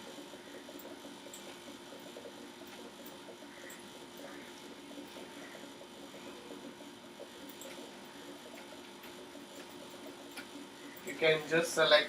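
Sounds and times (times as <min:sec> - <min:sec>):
computer mouse clicks: 0:07.4 - 0:07.8, 0:08.4 - 0:11.2.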